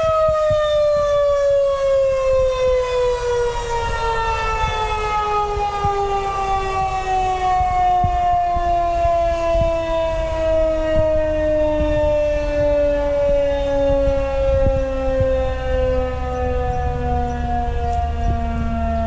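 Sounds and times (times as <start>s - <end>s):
mechanical warning siren: 0.0s - 19.0s.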